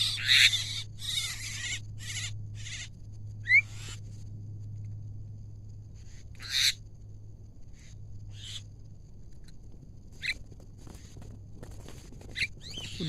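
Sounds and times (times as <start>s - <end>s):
birds giving harsh squawks: 0.0s - 4.0s, 6.4s - 6.8s, 7.8s - 8.6s
low steady hum: 0.0s - 13.0s.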